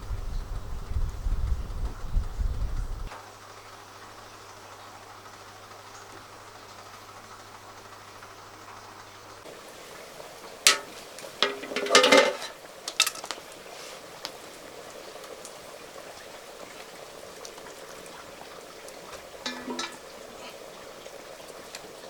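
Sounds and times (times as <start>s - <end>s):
food boiling in a pot: 0.0s - 22.0s
cookware and utensils clinking: 10.6s - 13.4s, 19.4s - 20.5s.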